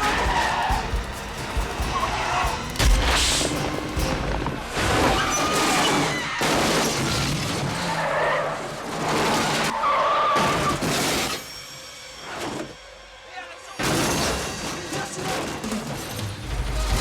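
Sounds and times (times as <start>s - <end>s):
loud crash hits: 0.0s - 7.8s
car engines racing: 0.0s - 10.8s
tyres skidding and squealing: 0.0s - 17.0s.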